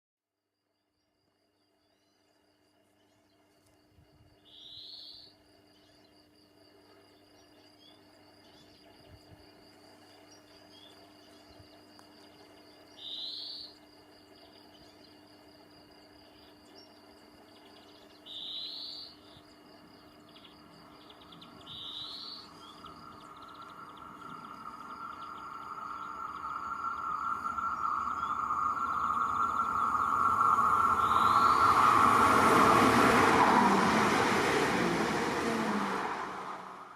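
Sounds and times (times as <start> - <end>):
insect trill: 0.4 - 36.9
short bird calls: 20.4 - 31.8
approaching train: 20.6 - 36.9.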